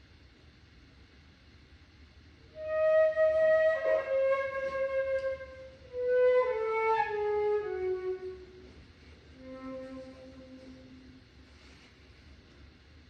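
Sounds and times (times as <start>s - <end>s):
flute playing slow notes: 2.5s - 11.8s.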